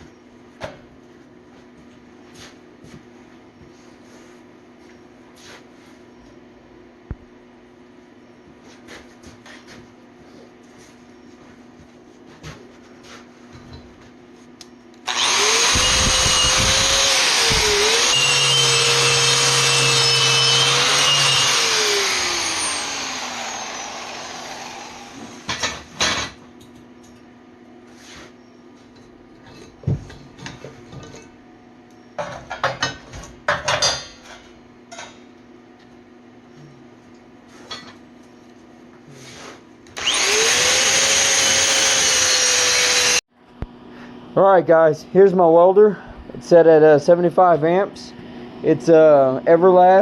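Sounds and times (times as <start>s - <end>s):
electric grinder on steel pipe: 15.1s - 25.4s, 40.0s - 43.2s.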